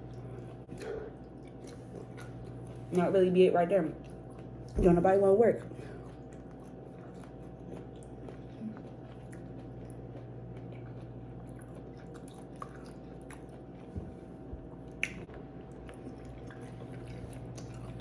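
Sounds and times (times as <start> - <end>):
chewing and wet mouth sounds: 0.0 - 3.1, 3.8 - 4.8, 5.4 - 18.0
steady low hum: 0.0 - 18.0
mouth clicks and smacks: 14.9 - 15.3.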